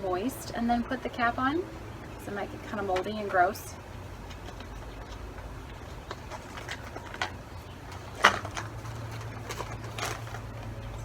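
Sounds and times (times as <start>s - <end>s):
low steady hum: 0.0s - 11.0s
knocks and rustles of small items: 4.2s - 11.0s
plastic water bottle handled: 4.3s - 10.8s.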